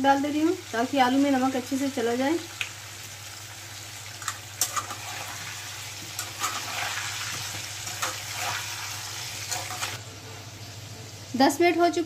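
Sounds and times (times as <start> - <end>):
potatoes sizzling in oil: 0.0 - 12.0
utensil scraping pan: 4.6 - 10.0.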